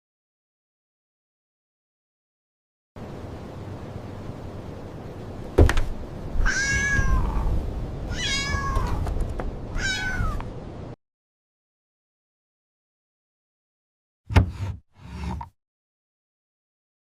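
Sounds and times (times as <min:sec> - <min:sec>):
cat meowing: 0:06.4 - 0:09.0, 0:09.7 - 0:10.4.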